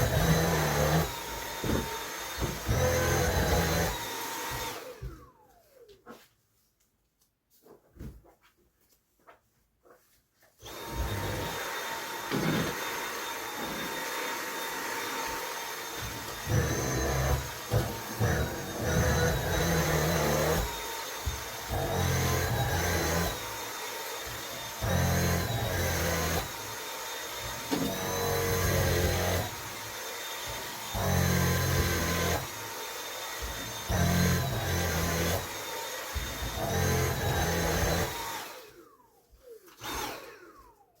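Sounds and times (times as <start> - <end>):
vacuum cleaner motor whine: 0.0 - 5.9, 10.6 - 41.0
vacuum head pushed across floor: 10.7 - 16.9.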